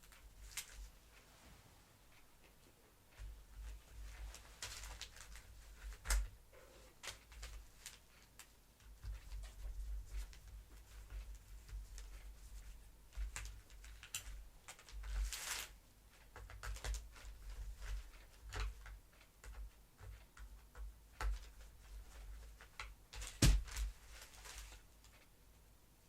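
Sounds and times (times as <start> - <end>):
plastic parts clicking and knocking: 16.2 - 24.0.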